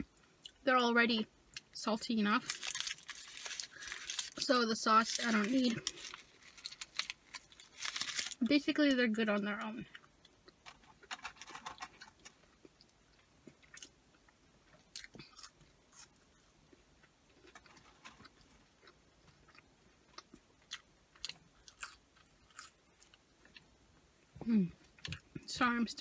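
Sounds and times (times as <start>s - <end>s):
person chewing food: 9.9s - 23.7s.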